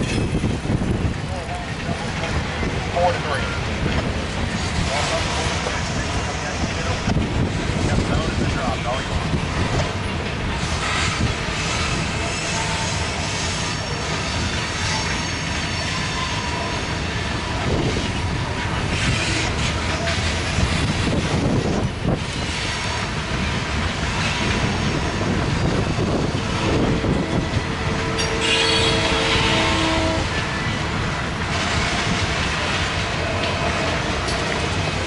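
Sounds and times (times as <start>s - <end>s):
wheels rumbling on rail: 0.0s - 35.0s
wheels squealing: 24.2s - 30.8s.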